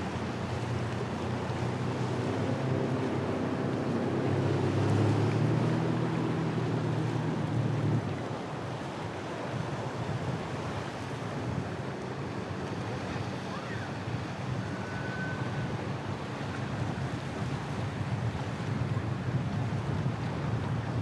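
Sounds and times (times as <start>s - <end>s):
boat engines rumbling: 0.0s - 21.0s
wind buffeting microphone: 15.4s - 21.0s.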